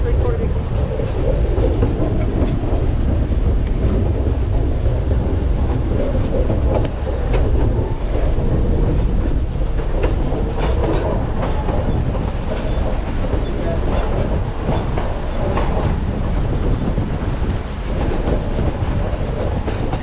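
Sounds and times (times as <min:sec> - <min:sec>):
train rumbling: 0:00.0 - 0:20.0
wheels clattering on rails: 0:00.0 - 0:20.0.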